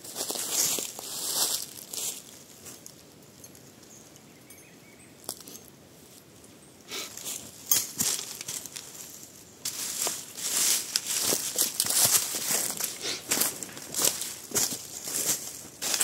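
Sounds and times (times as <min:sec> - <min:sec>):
faint outdoor background: 0:00.0 - 0:16.0
rustling handling noises: 0:07.1 - 0:16.0.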